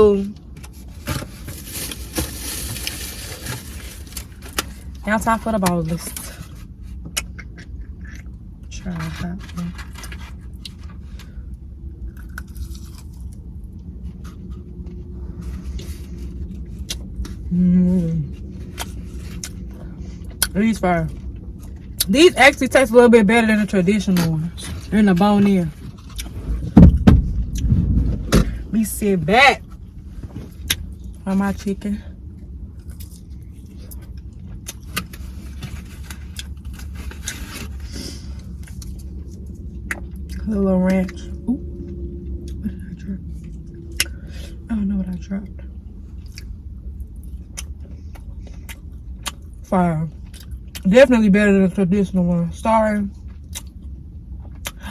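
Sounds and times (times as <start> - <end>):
steady low hum: 0.0 - 54.9
steady low rumble: 0.0 - 54.9
chewing crunchy food: 6.0 - 8.7, 9.4 - 17.5, 18.3 - 20.5, 32.4 - 40.4, 46.0 - 50.9, 53.2 - 54.8.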